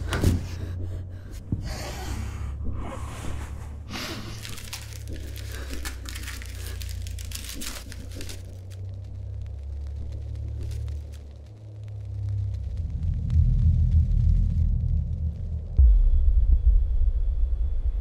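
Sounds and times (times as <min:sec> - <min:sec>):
steady low drone: 0:00.0 - 0:18.0
rustles: 0:02.8 - 0:12.8.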